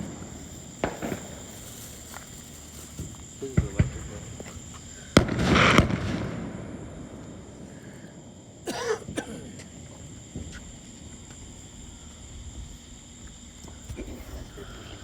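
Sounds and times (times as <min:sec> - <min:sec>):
insect trill: 0:00.0 - 0:15.0
person coughing: 0:08.6 - 0:09.6.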